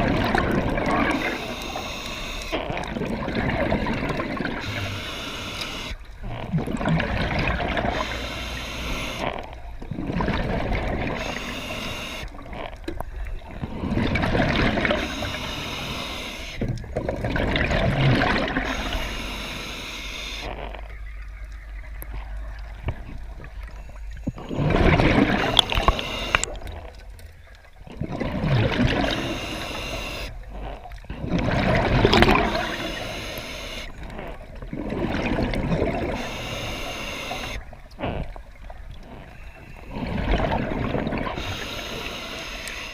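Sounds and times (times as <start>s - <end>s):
water gurgling and splashing: 0.0s - 42.9s.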